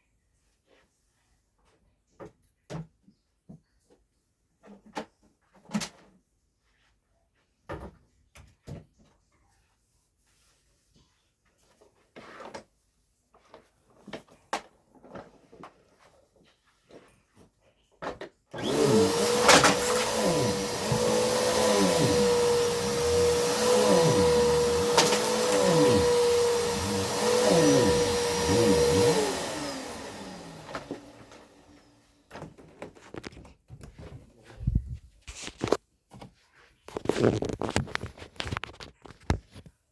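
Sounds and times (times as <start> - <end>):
vacuum cleaner running: 18.6 - 32.0.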